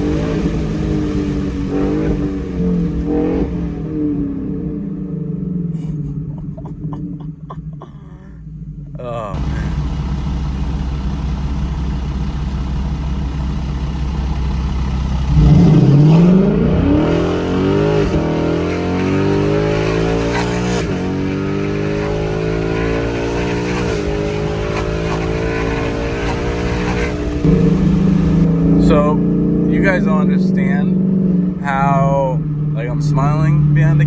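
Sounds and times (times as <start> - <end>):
loud car engine accelerating: 0.0 - 6.4, 9.3 - 34.0.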